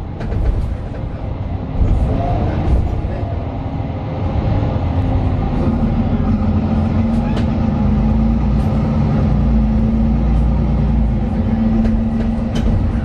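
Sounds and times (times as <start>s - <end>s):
bus diesel engine rumble: 0.0s - 13.0s
road noise: 0.0s - 13.0s.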